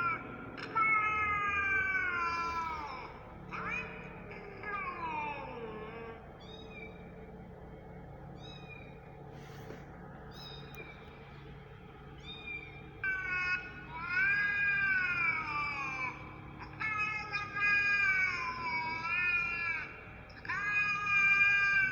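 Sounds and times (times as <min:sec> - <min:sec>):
cat meowing: 0:00.0 - 0:07.0, 0:08.4 - 0:08.9, 0:12.2 - 0:21.9.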